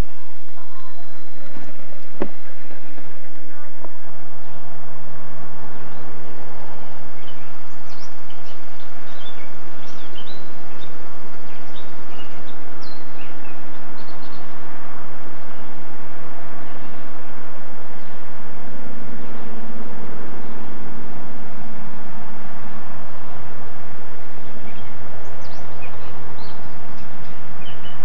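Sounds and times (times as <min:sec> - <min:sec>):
low steady hum: 0:00.0 - 0:28.0
steady background noise: 0:00.0 - 0:28.0
birds chirping: 0:05.6 - 0:14.7, 0:24.4 - 0:28.0.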